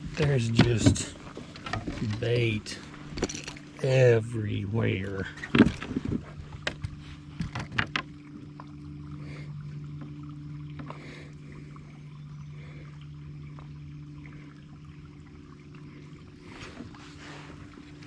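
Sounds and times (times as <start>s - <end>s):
steady low hum: 0.0s - 18.0s
water trickling against hull: 0.0s - 18.0s.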